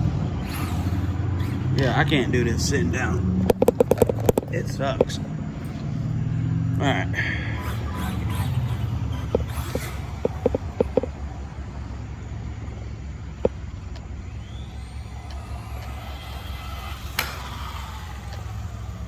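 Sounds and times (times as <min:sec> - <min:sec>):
rc car motor whining: 0:00.0 - 0:19.0
sharp clicks: 0:03.3 - 0:05.9, 0:09.2 - 0:11.5, 0:12.6 - 0:19.0.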